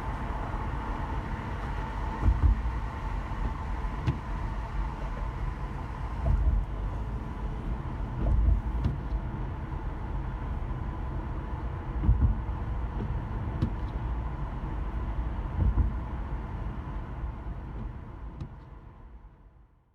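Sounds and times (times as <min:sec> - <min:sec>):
low bumps: 0:00.0 - 0:09.3, 0:11.8 - 0:14.4, 0:15.0 - 0:17.0
car road and engine rumble: 0:00.0 - 0:19.6.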